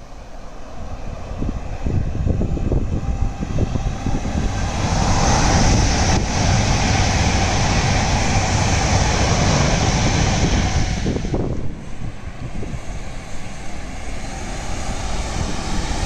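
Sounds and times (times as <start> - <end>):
train wheels rushing on rails: 0.0 - 16.0
wind buffeting microphone: 0.0 - 16.0.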